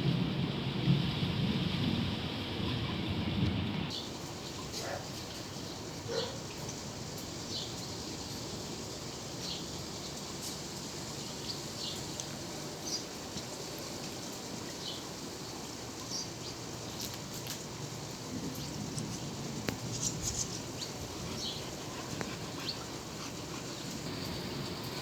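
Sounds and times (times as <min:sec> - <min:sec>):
wind blowing: 0:17.6 - 0:25.0.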